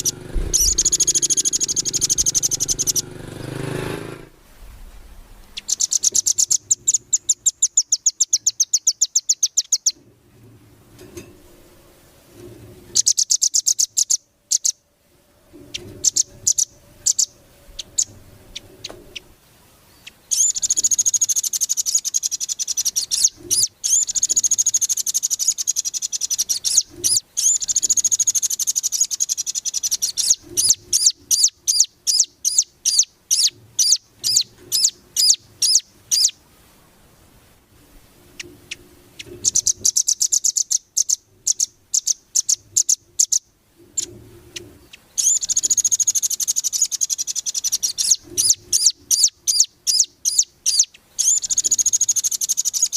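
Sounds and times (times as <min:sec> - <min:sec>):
bird singing high trills: 0:00.0 - 0:04.0, 0:05.6 - 0:10.0, 0:15.7 - 0:19.3, 0:19.9 - 0:36.4, 0:38.7 - 0:44.1, 0:44.9 - 0:52.9.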